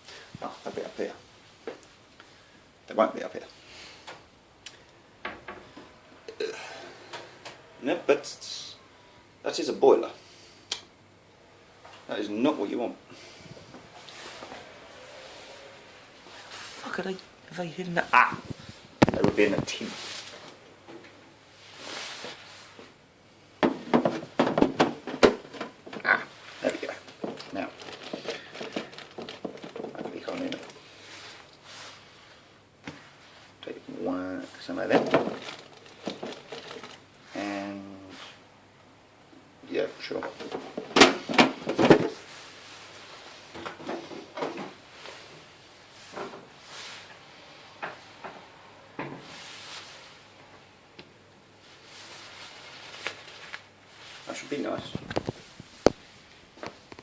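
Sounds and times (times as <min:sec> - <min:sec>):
soft rustle: 0:13.2 - 0:20.6, 0:21.4 - 0:23.0, 0:26.3 - 0:37.4, 0:42.2 - 0:43.5, 0:44.8 - 0:47.4, 0:49.2 - 0:50.6, 0:51.6 - 0:57.0
knocks and clatters in cupboard: 0:23.6 - 0:26.1, 0:27.0 - 0:30.7, 0:34.9 - 0:37.0, 0:40.2 - 0:42.2
knocks and clicks of objects: 0:23.6 - 0:26.1.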